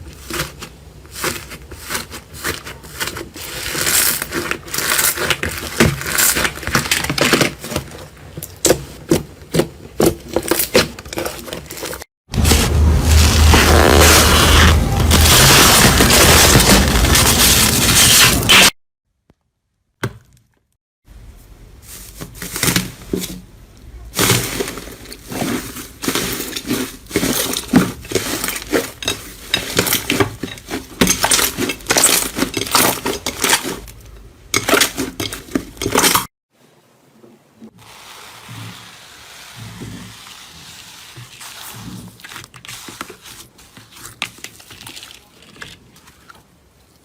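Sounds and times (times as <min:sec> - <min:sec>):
brittle material crushed by hand: 0:00.1 - 0:08.1, 0:10.0 - 0:18.8, 0:43.8 - 0:46.4.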